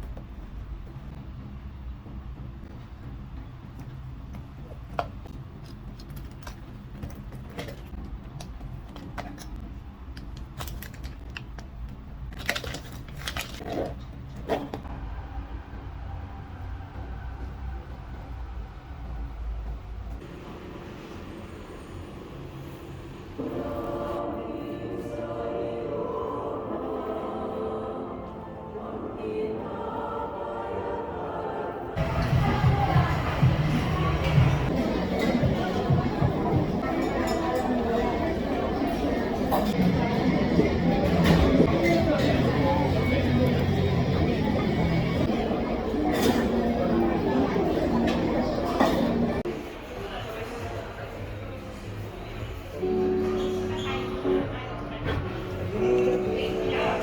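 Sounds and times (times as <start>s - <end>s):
music of long held chords: 23.4s - 49.4s.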